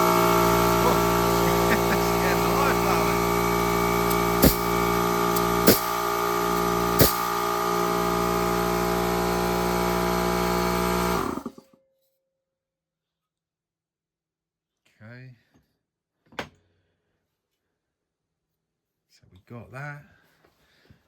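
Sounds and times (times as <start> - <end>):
pneumatic joggler running: 0.0 - 11.6
sharp knocks: 4.4 - 4.8.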